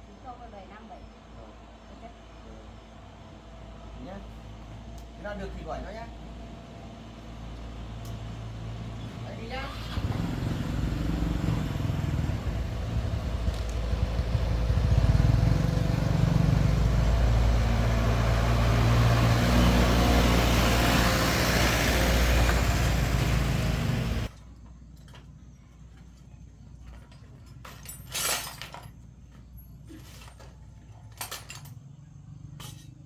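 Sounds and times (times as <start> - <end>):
vehicle engine running: 4.5 - 24.3.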